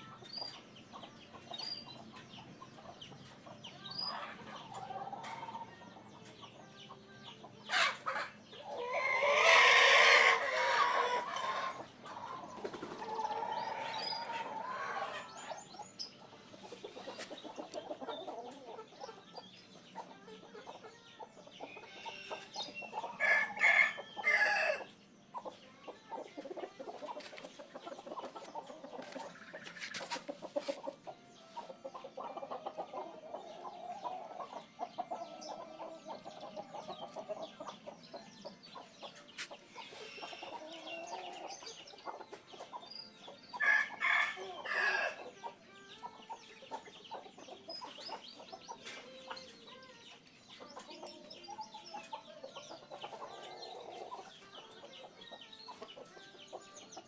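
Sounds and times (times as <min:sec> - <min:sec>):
chickens clucking: 0:00.0 - 0:57.0
loud high chicken calls: 0:07.7 - 0:11.8, 0:23.2 - 0:24.9.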